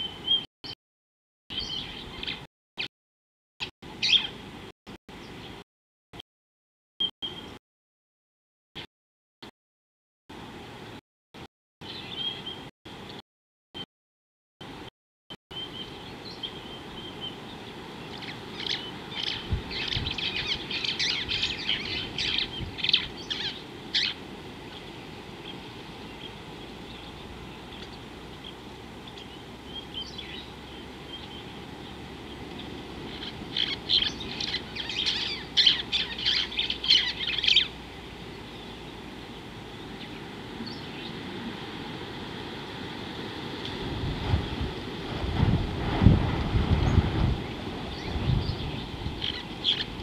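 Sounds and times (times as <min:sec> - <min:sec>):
bird chattering calls: 0:33.1 - 0:37.7.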